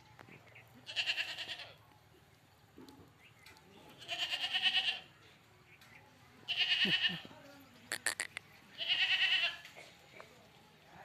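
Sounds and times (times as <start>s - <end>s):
goat bleating: 0.8s - 1.8s, 4.0s - 5.1s, 6.5s - 7.3s, 7.9s - 9.8s.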